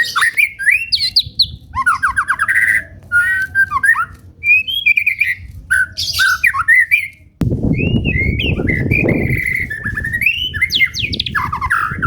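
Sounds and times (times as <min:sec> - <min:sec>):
bird singing whistled phrases: 0:00.0 - 0:12.0
low rumbling noise: 0:07.4 - 0:12.0.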